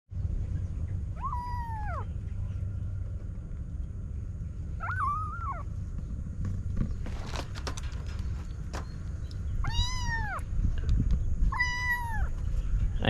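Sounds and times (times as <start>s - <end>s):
low background hum: 0.1s - 13.0s
kitten meowing: 1.1s - 2.1s, 4.8s - 5.7s, 9.6s - 10.4s, 11.5s - 12.4s.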